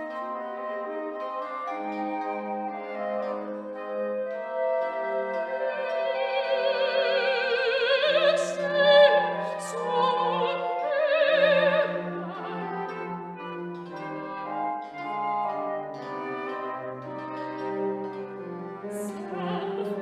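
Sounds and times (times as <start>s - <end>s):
orchestral accompaniment: 0.0s - 20.0s
operatic voice singing: 6.2s - 12.8s, 18.9s - 20.0s.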